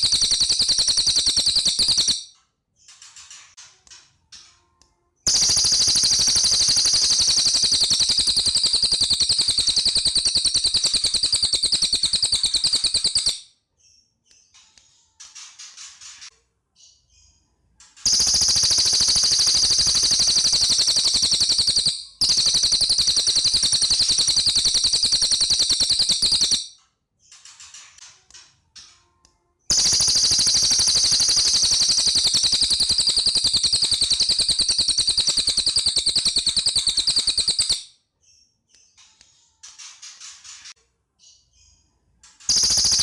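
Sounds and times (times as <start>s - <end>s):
songbird rattling trill: 0.0s - 2.3s, 5.3s - 13.4s, 18.0s - 26.7s, 29.7s - 37.9s, 42.5s - 43.0s.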